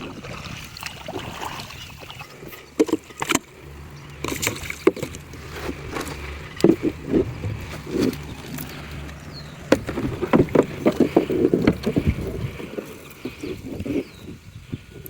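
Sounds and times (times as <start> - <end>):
splashes and knocks in water: 0.0 - 3.6, 4.2 - 13.4
low steady rumble: 0.0 - 15.0.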